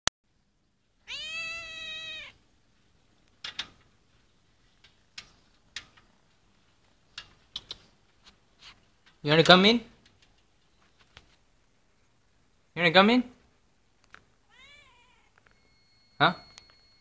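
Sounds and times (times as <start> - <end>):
cat meowing: 1.0 - 2.4, 14.5 - 15.4.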